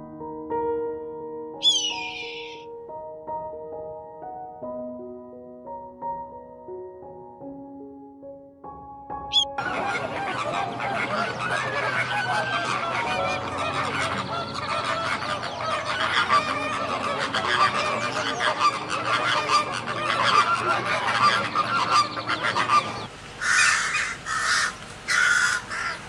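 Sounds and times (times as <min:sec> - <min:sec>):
harsh bird calls: 0:01.6 - 0:02.6, 0:09.3 - 0:26.0
waterfowl honking: 0:01.6 - 0:02.6, 0:09.3 - 0:26.0.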